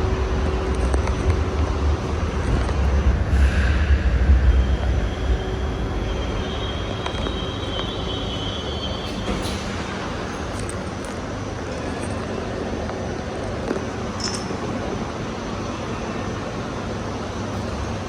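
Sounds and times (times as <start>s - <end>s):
train wheels and motors rumbling: 0.0s - 18.0s
high wheel squeal: 3.4s - 9.8s.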